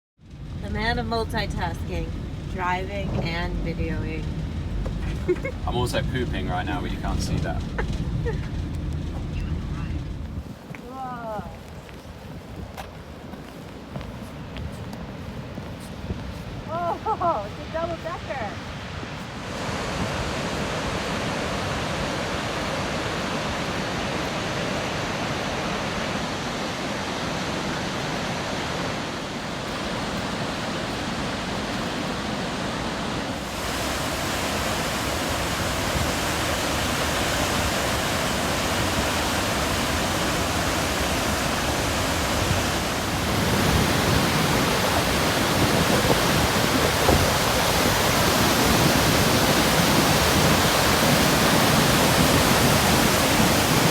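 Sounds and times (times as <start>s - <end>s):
large waterfall rushing: 16.6s - 53.9s.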